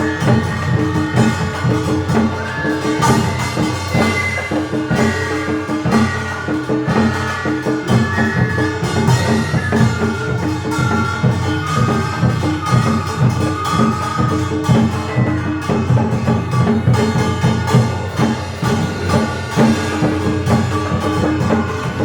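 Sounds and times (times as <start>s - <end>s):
drum strokes beat: 0.0s - 22.0s
traditional orchestra playing: 0.0s - 22.0s.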